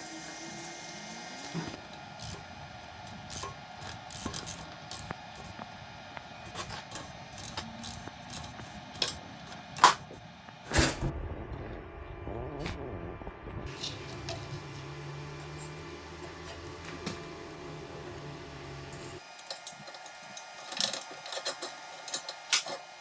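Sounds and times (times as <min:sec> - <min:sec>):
mechanical clicks and knocks: 0:02.2 - 0:05.6, 0:06.5 - 0:11.1.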